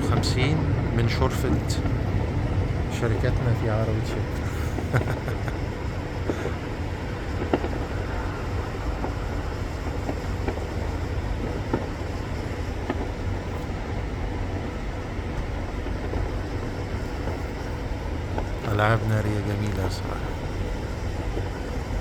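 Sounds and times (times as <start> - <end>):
steady low rumble: 0.0 - 22.0
distant fireworks popping: 3.1 - 14.6.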